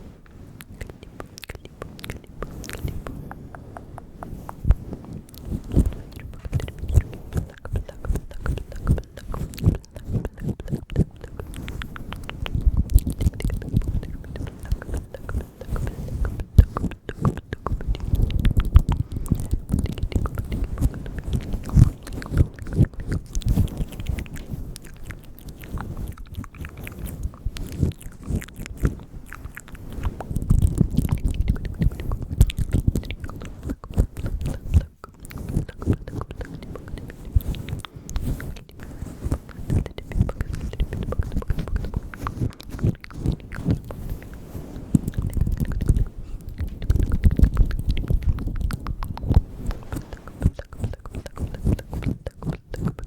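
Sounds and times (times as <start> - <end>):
wet mouth clicks and smacks: 0.2 - 53.0.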